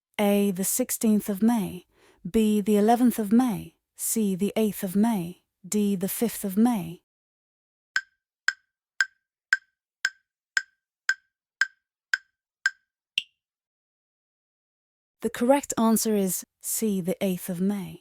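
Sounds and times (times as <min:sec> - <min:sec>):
clock-like ticks: 0:08.0 - 0:12.8.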